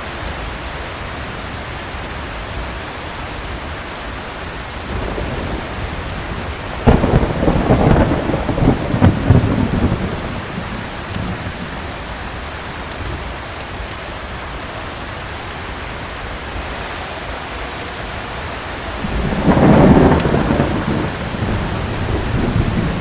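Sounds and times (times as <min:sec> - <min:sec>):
heavy rain: 0:00.0 - 0:23.0
thunder clap and rumble: 0:04.8 - 0:13.4, 0:18.9 - 0:23.0.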